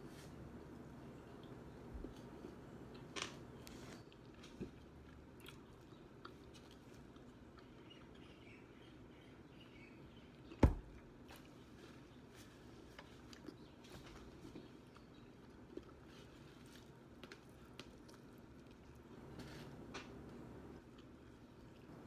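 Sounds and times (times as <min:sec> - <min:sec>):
chewing with wet clicks and crunches: 0:00.7 - 0:19.3, 0:20.0 - 0:22.0
dull thump: 0:10.6 - 0:11.0.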